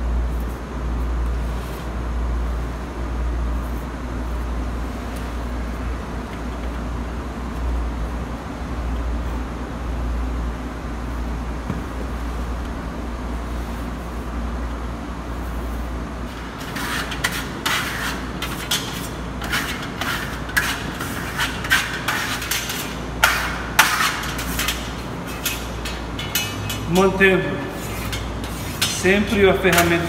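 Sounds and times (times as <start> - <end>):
steady low hum: 0.0 - 30.0
trowel scraping paste on wall: 16.3 - 30.0.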